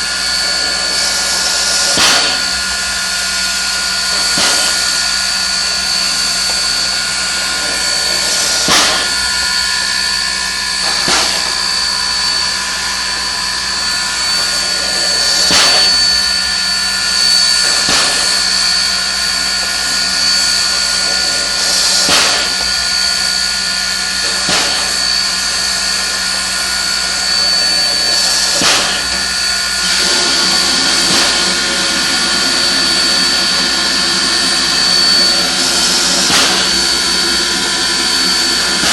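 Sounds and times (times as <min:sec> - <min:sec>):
steam locomotive hissing: 0:00.0 - 0:38.9.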